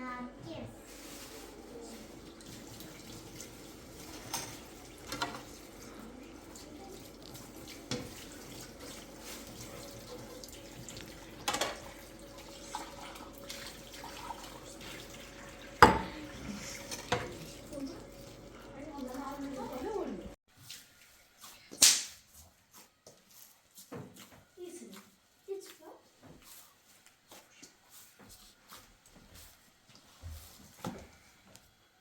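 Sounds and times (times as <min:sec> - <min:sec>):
water running: 0:00.0 - 0:21.7.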